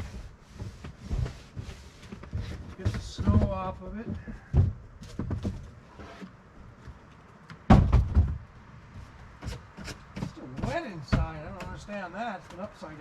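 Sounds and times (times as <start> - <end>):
knocks and thuds on container: 7.7 - 8.4.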